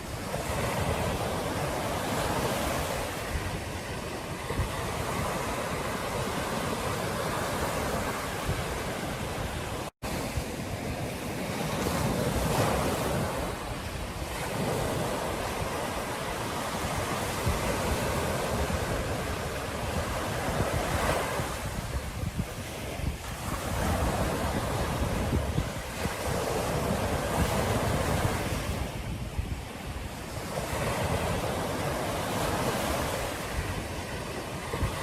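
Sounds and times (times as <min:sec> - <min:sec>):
ocean surf washing onto beach: 0:00.0 - 0:35.0
wind buffeting microphone: 0:00.0 - 0:35.0.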